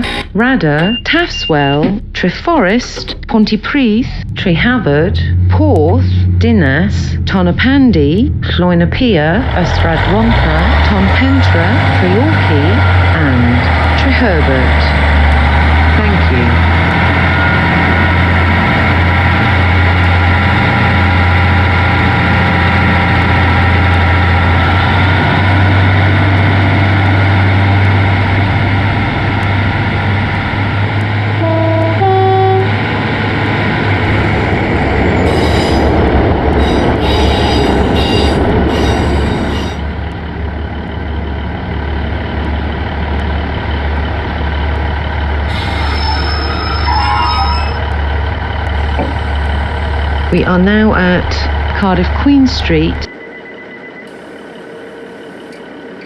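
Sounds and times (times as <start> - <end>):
train wheels rumbling: 0.0 - 56.0
brief multi-note tone: 31.4 - 32.8, 45.6 - 47.8.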